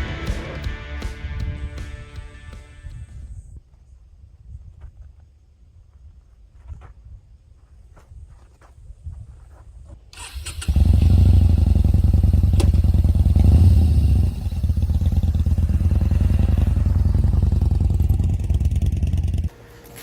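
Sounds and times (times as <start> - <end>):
motorcycle engine starting and idling: 10.2 - 19.6.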